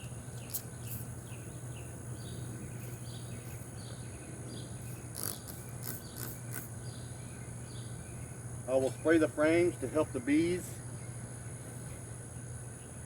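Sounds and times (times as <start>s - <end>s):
insect chirps: 0.0s - 13.0s
insect chorus trilling: 0.0s - 13.0s
low steady hum: 0.0s - 13.0s
spray bottle spritzes: 5.1s - 6.7s.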